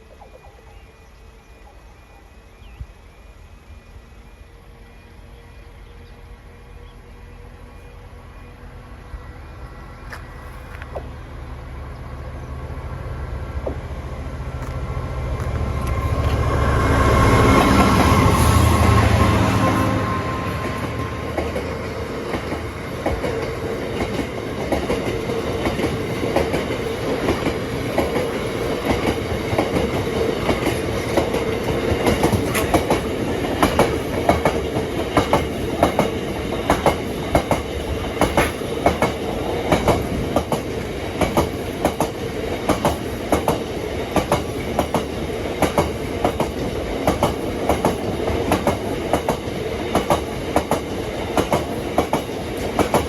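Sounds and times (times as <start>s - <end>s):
train rumble: 0.0s - 53.0s
train wheels clicking over rail joints: 13.6s - 16.7s, 20.7s - 53.0s.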